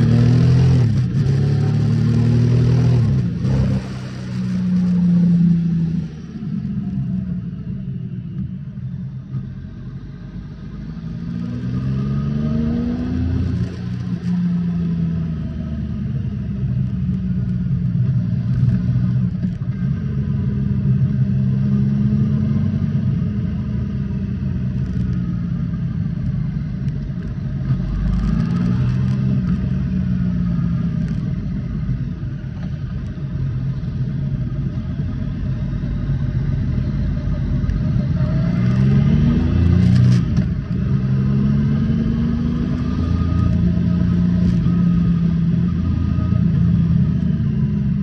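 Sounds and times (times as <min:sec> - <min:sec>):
motorcycle engine revving: 0:00.0 - 0:06.4, 0:35.8 - 0:48.0.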